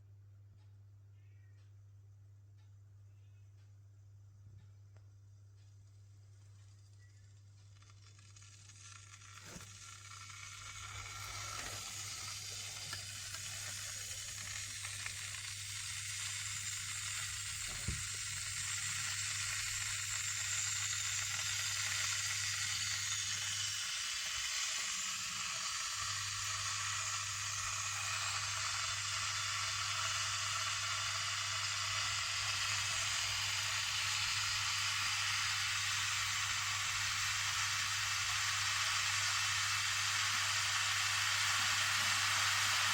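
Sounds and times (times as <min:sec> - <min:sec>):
kettle heating water hiss: 0:04.6 - 0:42.9.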